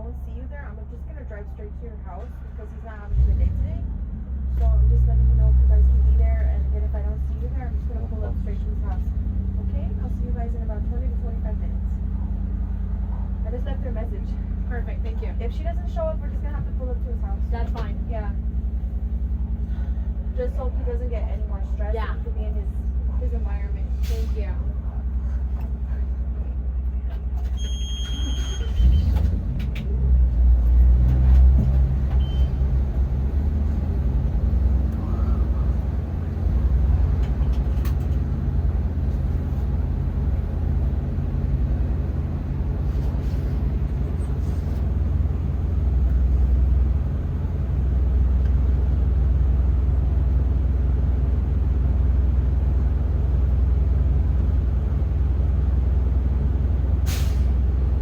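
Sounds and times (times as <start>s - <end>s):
bus engine rumbling: 0.0s - 58.0s
short high-pitched beep: 27.6s - 28.7s.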